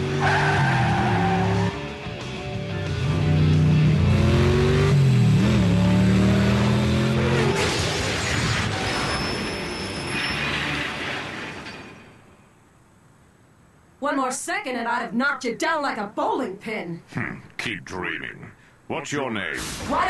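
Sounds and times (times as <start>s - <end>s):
background music: 0.0s - 7.1s
race car engine effect: 0.0s - 11.7s
rushing noise: 7.3s - 12.6s.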